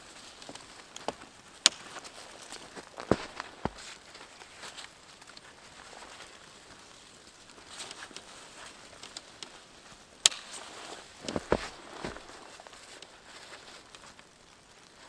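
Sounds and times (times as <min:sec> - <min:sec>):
crunching footsteps in snow: 0:00.0 - 0:14.2
heavy thuds: 0:03.0 - 0:03.9, 0:11.2 - 0:12.6.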